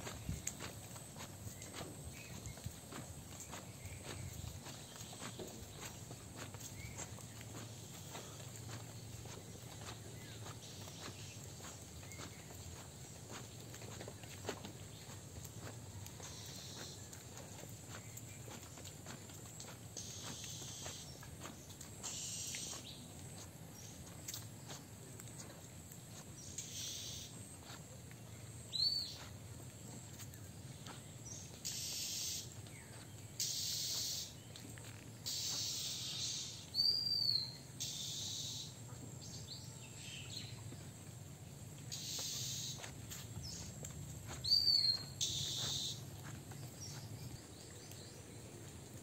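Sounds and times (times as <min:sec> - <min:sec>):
harsh hissing bird calls: 0:16.2 - 0:17.1, 0:20.0 - 0:21.2, 0:22.0 - 0:23.1, 0:26.4 - 0:27.4, 0:31.2 - 0:34.5, 0:35.2 - 0:39.4, 0:41.9 - 0:43.8, 0:44.4 - 0:46.2
high arching bird chirps: 0:20.0 - 0:21.3, 0:22.0 - 0:23.0, 0:26.4 - 0:27.4, 0:28.7 - 0:29.3, 0:31.3 - 0:34.5, 0:35.2 - 0:40.6, 0:41.9 - 0:48.2.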